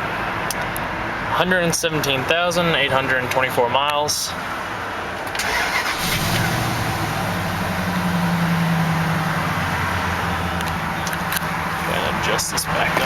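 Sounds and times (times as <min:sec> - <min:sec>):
highway traffic noise: 0:00.0 - 0:13.0
vehicle engine drone: 0:05.7 - 0:13.0.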